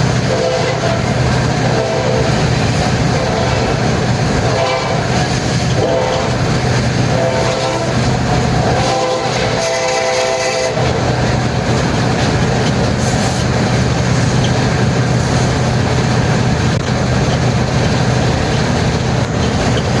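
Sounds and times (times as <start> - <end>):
train running with engine hum: 0.0 - 20.0
train horn chord: 0.2 - 3.8, 4.4 - 6.5, 7.1 - 11.2.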